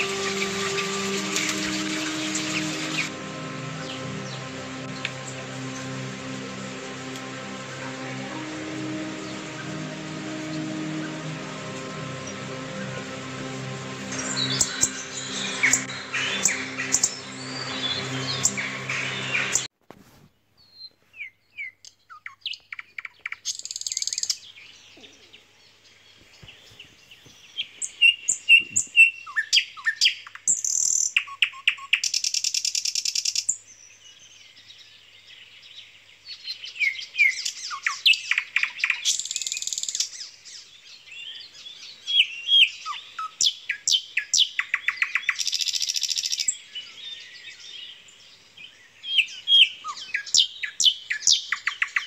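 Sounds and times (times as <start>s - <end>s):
background music: 0.0s - 19.7s.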